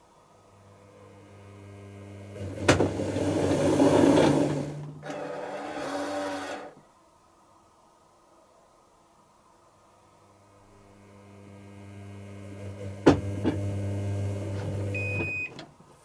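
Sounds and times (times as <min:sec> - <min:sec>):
washing machine running: 0:01.9 - 0:06.7
washing machine clunk: 0:02.6 - 0:04.8, 0:13.0 - 0:13.6.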